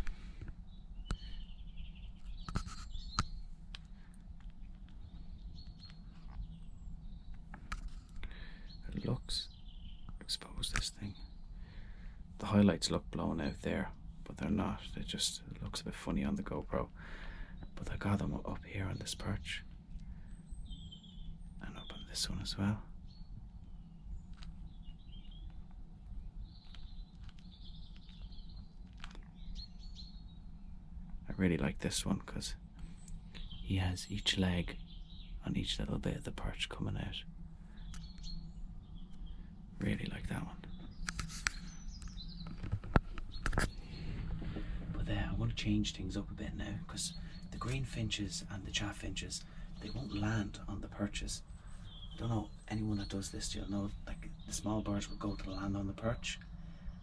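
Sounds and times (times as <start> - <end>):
songbirds chirping: 0.0 - 57.0
faint clicks: 25.4 - 29.6
sharp clicks: 40.8 - 44.7.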